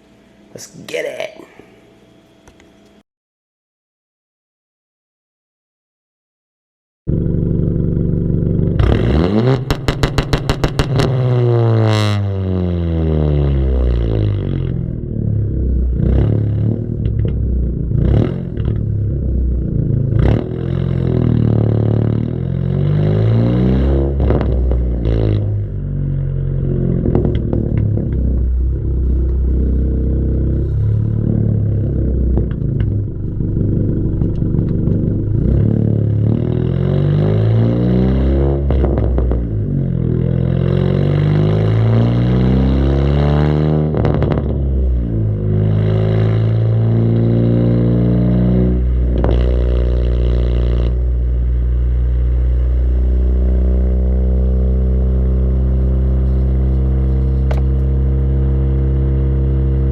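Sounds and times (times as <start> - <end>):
car engine revving: 7.1 - 59.9.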